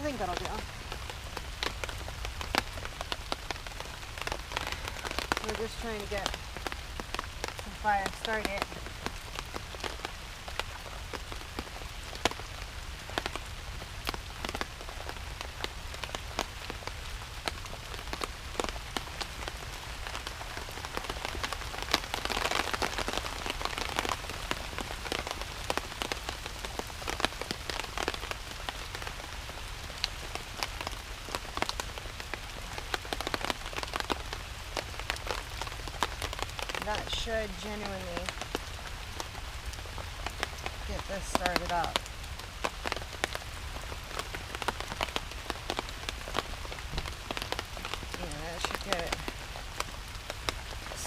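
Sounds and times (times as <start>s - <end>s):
rain falling: 0.0s - 51.0s.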